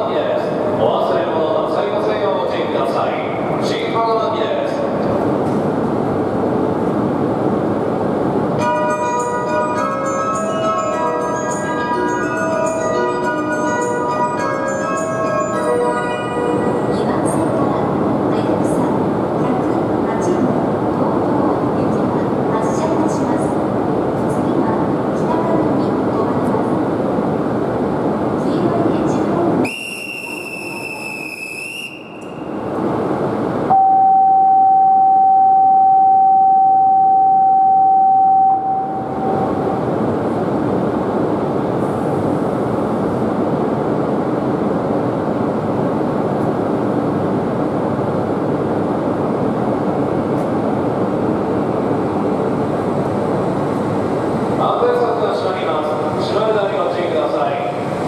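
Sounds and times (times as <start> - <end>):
train noise: 0.0 - 58.0
high whistle-like tone: 29.6 - 32.3, 33.7 - 39.6
loud steady tone: 29.6 - 32.8, 33.4 - 40.3.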